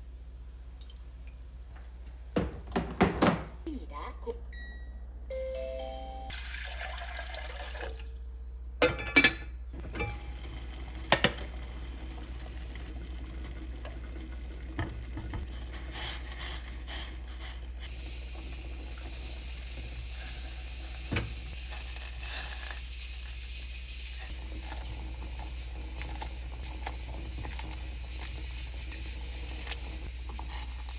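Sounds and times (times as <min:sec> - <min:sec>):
kitchen tap running: 0:06.3 - 0:08.3, 0:09.8 - 0:30.9
dishes clinking: 0:08.8 - 0:10.3.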